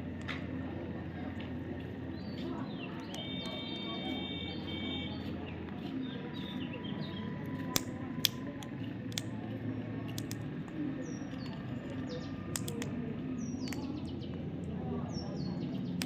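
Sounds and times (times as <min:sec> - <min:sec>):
sharp clicks: 0:07.5 - 0:14.8.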